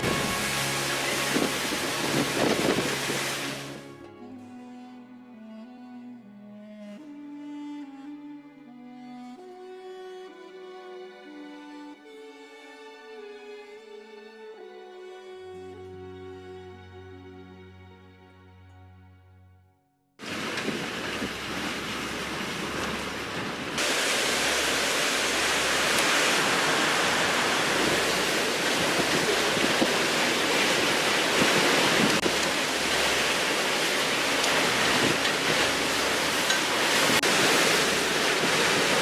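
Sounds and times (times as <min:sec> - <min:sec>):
hurricane wind and rain: 0:00.0 - 0:04.0, 0:20.2 - 0:39.0.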